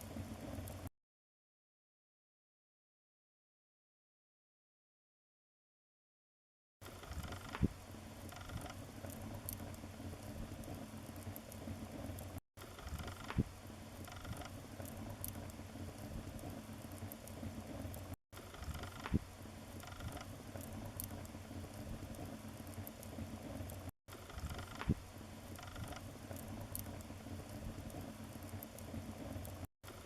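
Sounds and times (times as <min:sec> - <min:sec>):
wood fire crackling: 0:06.9 - 0:30.0.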